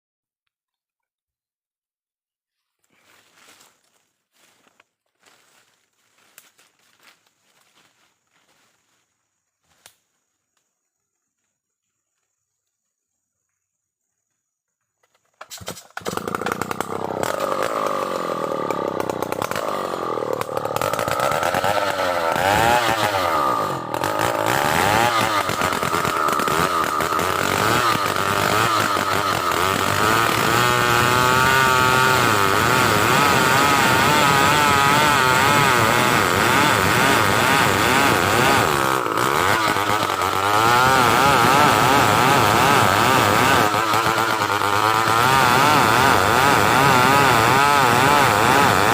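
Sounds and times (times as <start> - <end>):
chainsaw cutting log: 15.0 - 48.9.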